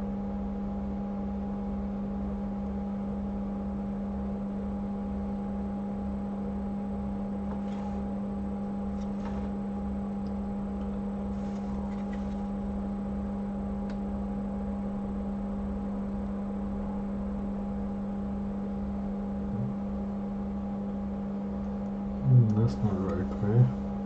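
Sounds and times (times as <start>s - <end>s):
machine hum: 0.0s - 24.0s
low pulsing drone: 18.7s - 20.1s, 22.2s - 24.0s.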